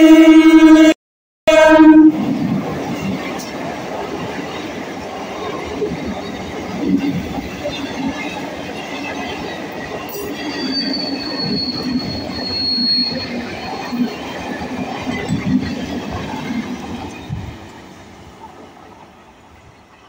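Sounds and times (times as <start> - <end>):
high wheel squeal: 9.0 - 14.5.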